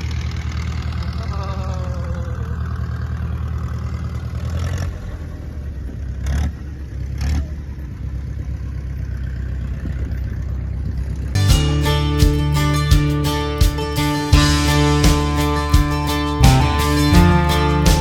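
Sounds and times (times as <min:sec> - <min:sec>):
engine humming: 0:11.4 - 0:18.0.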